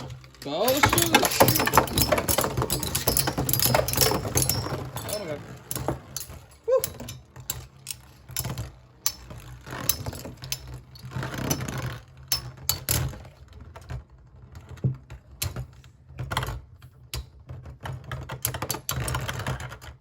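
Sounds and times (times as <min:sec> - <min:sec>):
spinning tops clashing and clattering: 0:00.0 - 0:11.6.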